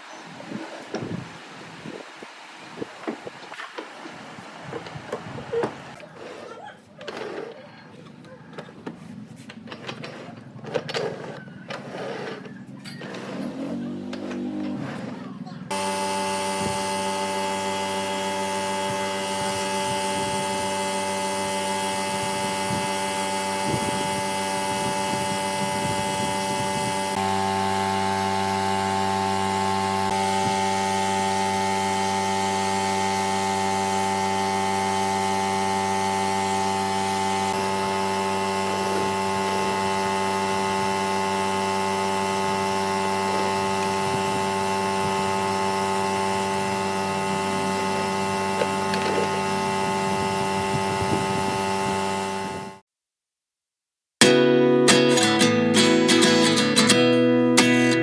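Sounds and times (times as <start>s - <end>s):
machine humming: 15.7s - 52.8s.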